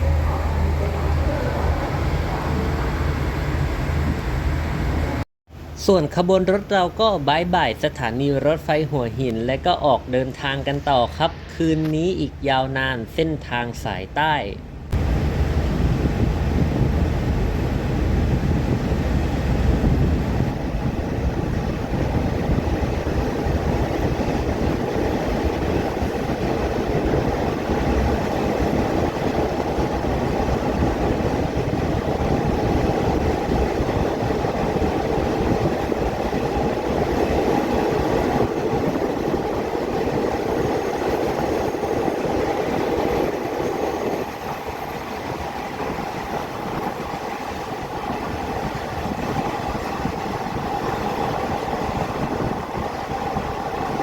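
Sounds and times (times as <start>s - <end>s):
train wheels rumbling: 15.0s - 54.0s.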